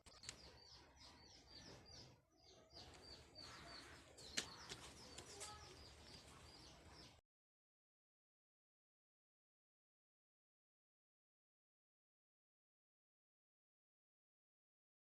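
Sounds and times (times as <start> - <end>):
small birds chirping: 0.0 - 7.2.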